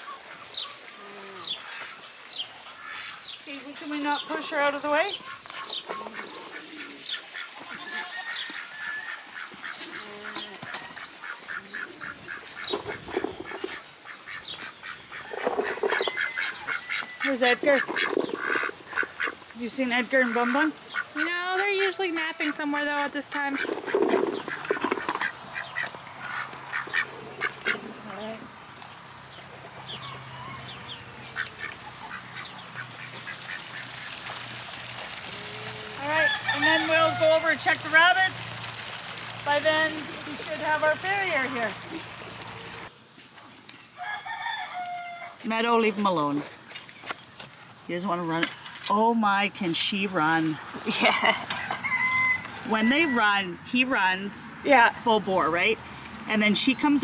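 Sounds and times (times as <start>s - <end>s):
birds chirping: 0.0s - 57.0s
ducks quacking and honking: 2.6s - 28.4s, 29.8s - 38.8s.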